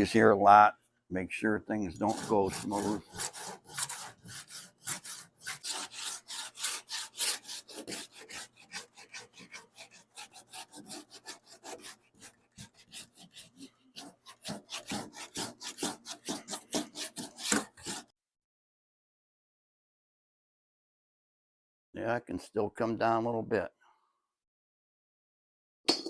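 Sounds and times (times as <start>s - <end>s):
sanding block rubbing filler: 1.9s - 18.1s.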